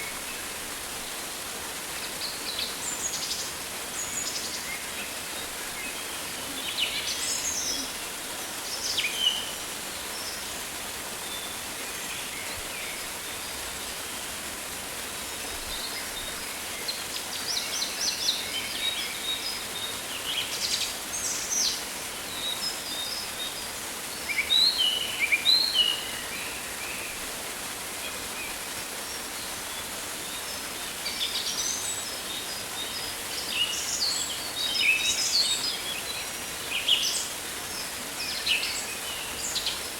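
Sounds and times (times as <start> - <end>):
steady forest hiss: 0.0 - 39.9.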